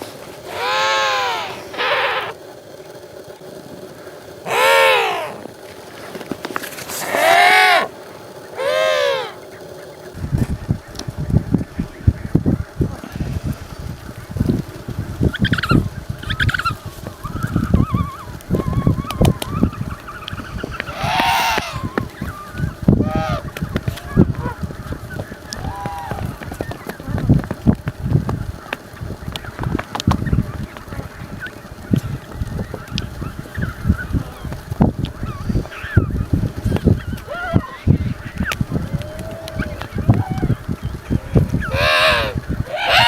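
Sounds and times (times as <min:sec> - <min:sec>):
penguin calling: 0:00.4 - 0:02.4, 0:04.5 - 0:05.6, 0:06.9 - 0:10.0, 0:16.4 - 0:27.4, 0:33.0 - 0:43.0.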